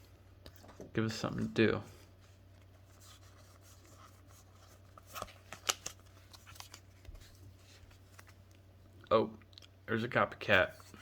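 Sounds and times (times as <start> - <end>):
cards rustling: 2.0 - 8.6.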